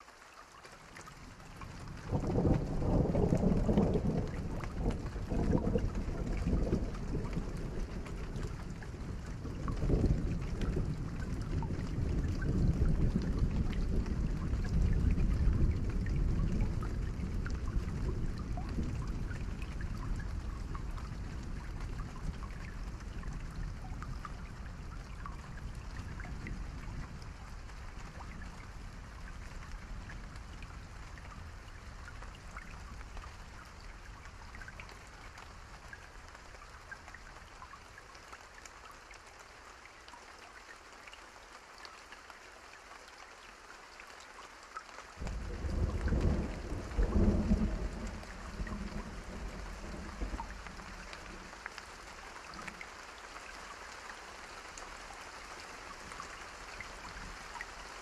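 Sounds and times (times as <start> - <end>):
steady rain falling: 0.0 - 58.0
thunder rumbling: 1.6 - 25.0, 45.2 - 51.5.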